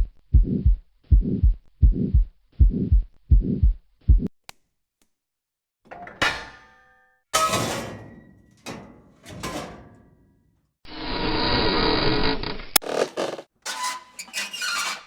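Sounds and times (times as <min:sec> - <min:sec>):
creaks: 0:11.6 - 0:15.0.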